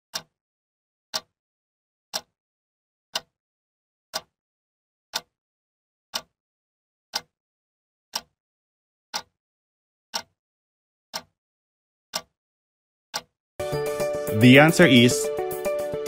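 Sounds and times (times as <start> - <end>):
timer ticking clicks: 0.1 - 0.3, 2.1 - 2.3, 3.1 - 3.3, 4.1 - 4.3, 5.1 - 5.3, 6.1 - 6.3, 7.1 - 7.3, 8.1 - 8.3, 9.1 - 9.4, 10.1 - 10.4, 11.1 - 11.4, 12.1 - 12.4, 13.1 - 16.0.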